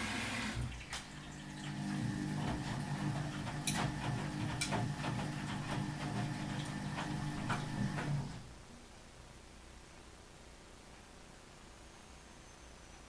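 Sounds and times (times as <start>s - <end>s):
drain pump humming: 0.0s - 8.5s.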